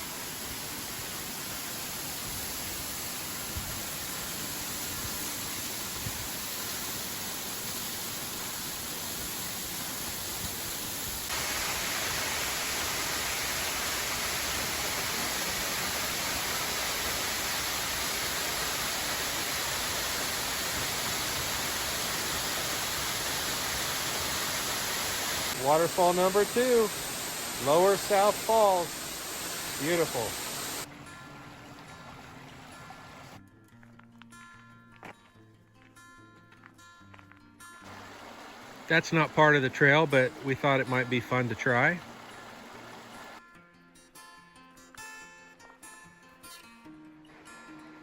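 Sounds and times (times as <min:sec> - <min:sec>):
waterfall rushing: 0:00.0 - 0:30.9, 0:31.9 - 0:33.4, 0:37.9 - 0:43.4.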